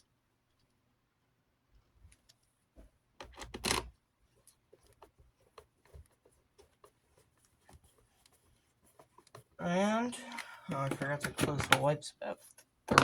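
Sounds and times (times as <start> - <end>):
plastic fan parts clicking and rattling: 3.2 - 9.6, 10.2 - 13.0
plastic clatter: 10.3 - 11.9.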